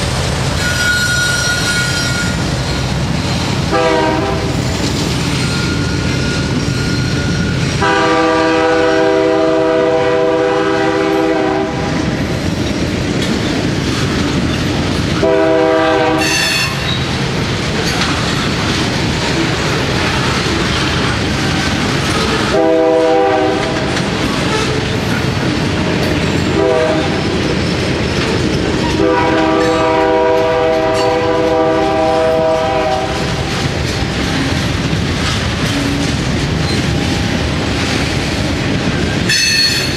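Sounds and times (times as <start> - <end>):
freight cars rolling: 0.0 - 39.9
locomotive horn blasts: 3.7 - 4.6, 7.8 - 11.9, 15.2 - 17.0, 22.2 - 23.9, 26.5 - 27.2, 28.9 - 33.4
wheels clicking over rail joints: 12.0 - 39.9.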